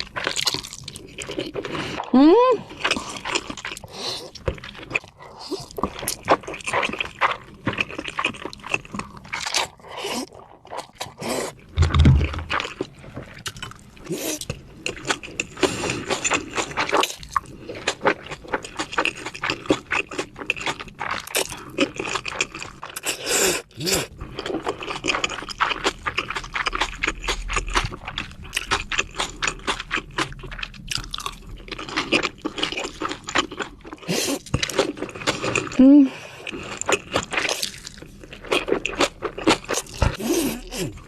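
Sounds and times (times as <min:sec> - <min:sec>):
close chewing and biting: 0:00.0 - 0:41.0
low thump: 0:11.8 - 0:12.6.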